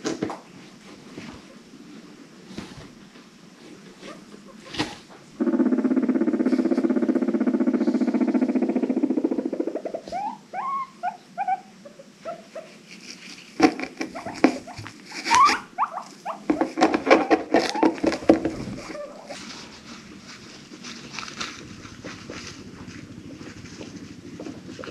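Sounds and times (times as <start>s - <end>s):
guinea pig low pulsing rumble: 0.7s - 24.9s
guinea pig squeaks: 4.0s - 12.8s, 13.6s - 19.4s.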